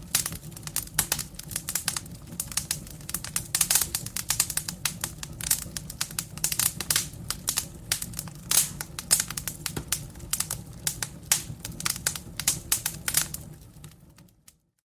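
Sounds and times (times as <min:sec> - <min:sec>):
burning logs crackling: 0:00.0 - 0:14.6
low rumble of flames: 0:00.0 - 0:14.7.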